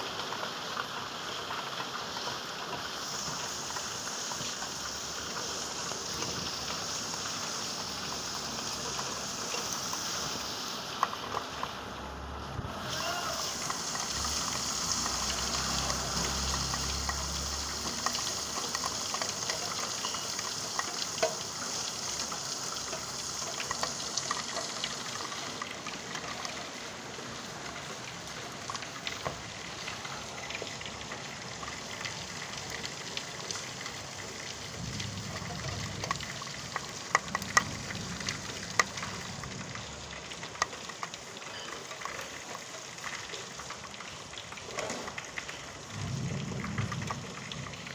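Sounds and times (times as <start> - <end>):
rain falling: 0.0 - 47.9
drips striking a surface: 13.4 - 26.3.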